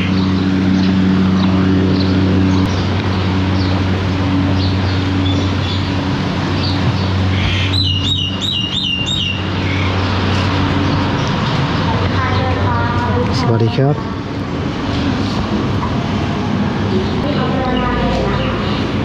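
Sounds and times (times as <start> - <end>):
bird chirping: 0.0 - 12.6
outdoor background noise: 0.0 - 19.0
steady low hum: 0.0 - 19.0.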